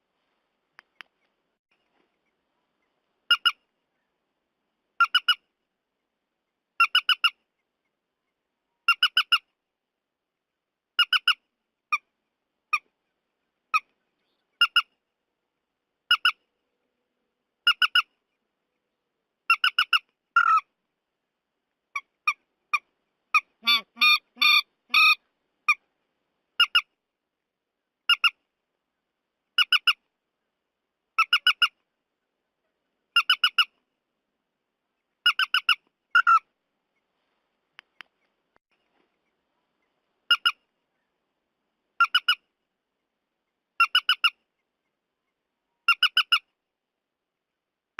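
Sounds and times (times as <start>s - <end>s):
bird calls squawking: 23.4s - 25.8s, 35.2s - 36.4s.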